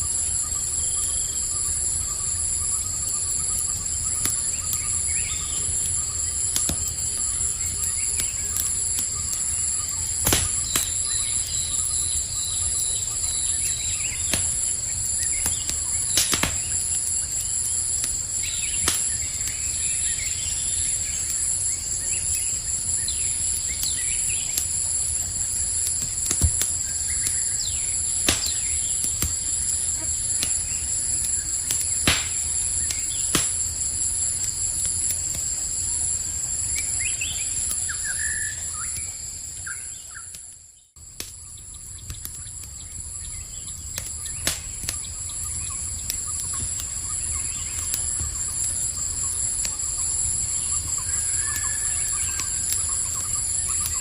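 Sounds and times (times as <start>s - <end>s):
campfire crackling and popping: 0.0s - 54.0s
insect chorus: 0.0s - 54.0s
faint bird chirps: 45.0s - 54.0s.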